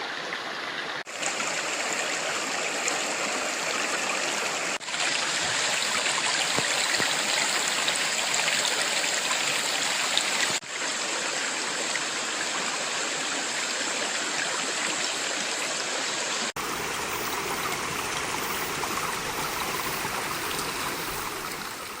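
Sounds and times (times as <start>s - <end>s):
mountain stream flowing: 0.0s - 22.0s.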